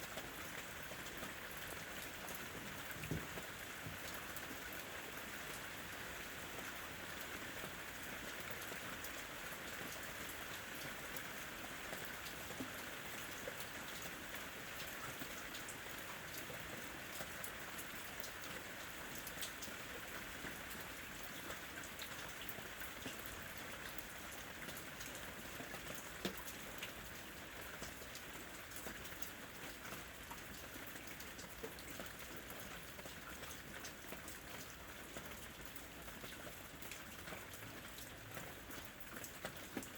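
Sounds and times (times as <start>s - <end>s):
steady rain: 0.0s - 39.9s
raindrops ticking: 16.8s - 39.9s.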